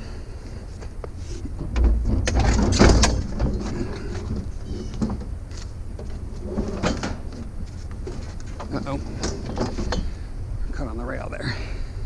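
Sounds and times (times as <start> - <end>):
items clattering and scraping: 1.2 - 10.2.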